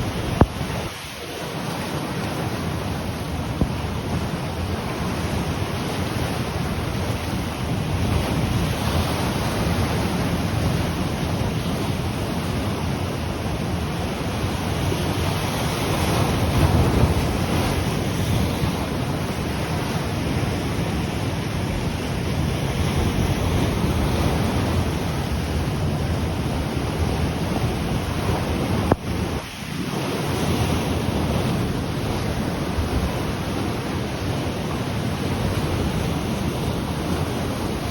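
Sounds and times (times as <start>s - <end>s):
ocean surf washing ashore: 0.0s - 37.9s
wind rumbling on microphone: 0.0s - 37.9s.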